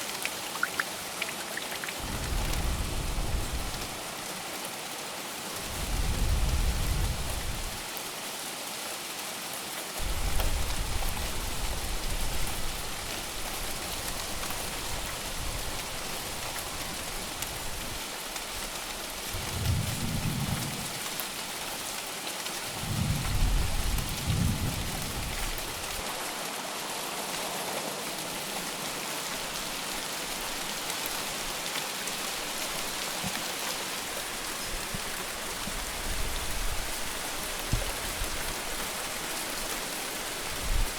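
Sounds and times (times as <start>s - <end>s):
heavy rain: 0.0s - 40.9s
thunder rumbling: 2.0s - 4.0s, 19.4s - 21.0s.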